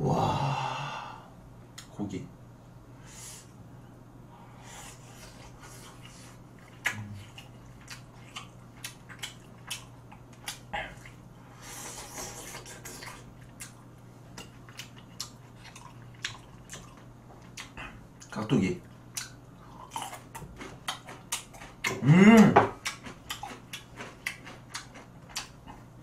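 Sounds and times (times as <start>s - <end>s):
steady low hum: 0.0s - 26.0s
wet chewing clicks and smacks: 6.6s - 11.2s, 12.6s - 22.0s, 22.7s - 26.0s.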